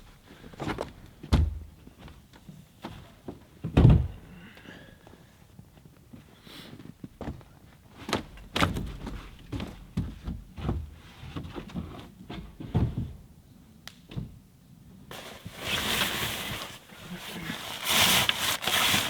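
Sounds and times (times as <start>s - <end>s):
knocks and thuds: 1.3s - 1.8s
steady rustling hiss: 15.1s - 19.0s.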